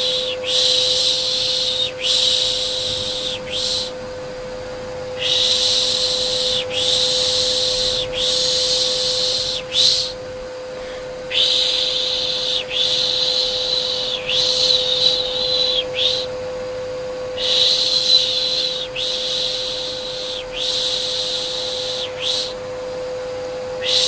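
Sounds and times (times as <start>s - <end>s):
vacuum cleaner humming: 0.0s - 24.0s
person shushing: 10.8s - 16.3s.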